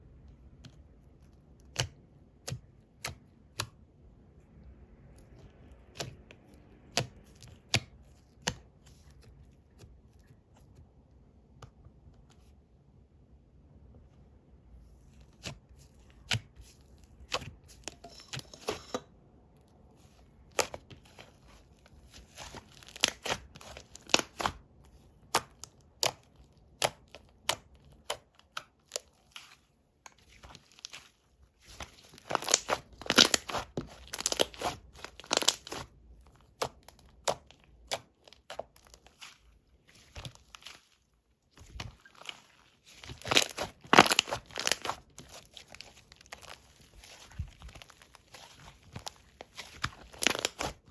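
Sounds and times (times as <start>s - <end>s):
slime crackling and popping: 22.0s - 24.6s, 31.7s - 35.9s, 41.5s - 50.9s.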